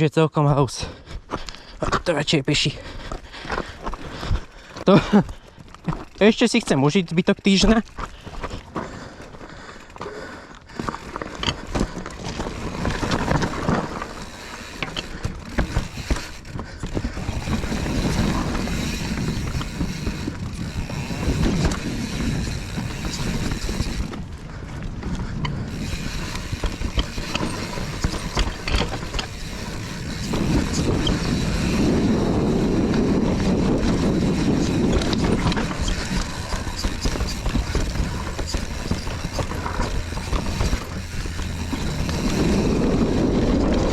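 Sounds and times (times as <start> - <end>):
tyres over dirt and roots: 0.0 - 43.9
bike chain and frame rattle: 1.3 - 43.9
freehub ratchet clicking: 10.7 - 24.3, 25.4 - 43.9.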